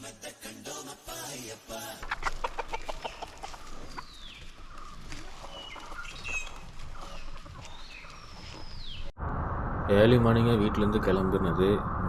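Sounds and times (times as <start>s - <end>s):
birds whistling descending calls: 5.5s - 9.1s.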